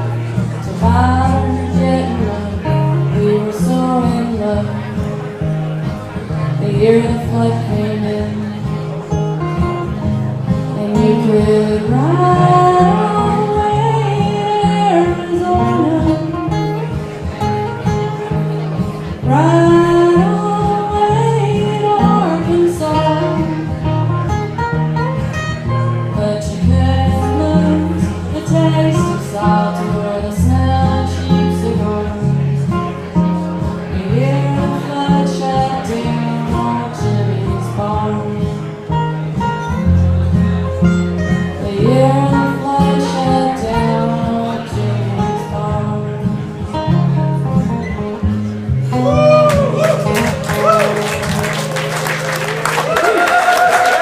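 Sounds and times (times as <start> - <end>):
acoustic guitar playing chords: 0.0 - 54.0
person singing: 10.6 - 16.6, 33.8 - 38.7, 41.6 - 47.1, 48.8 - 54.0.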